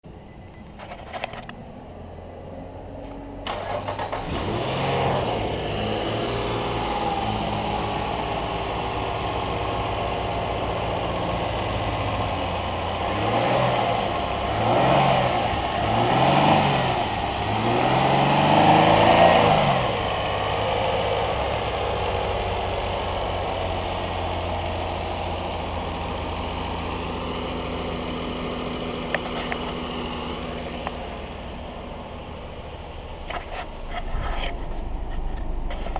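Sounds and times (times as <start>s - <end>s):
car engine starting and idling: 0.1s - 35.9s
car engine revving: 2.7s - 35.9s.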